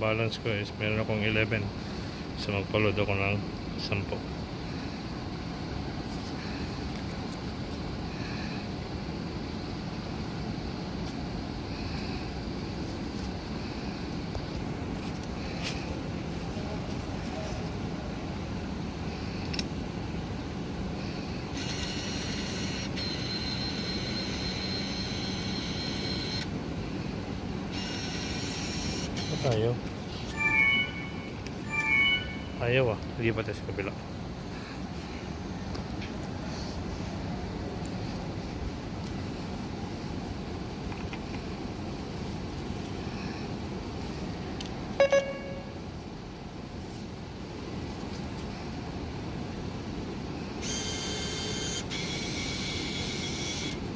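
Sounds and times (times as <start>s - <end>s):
machine whirring with high whine: 0.0s - 46.3s, 48.6s - 53.9s
steady low hum: 0.0s - 53.9s
short loud beeps: 30.3s - 32.6s, 45.0s - 45.8s.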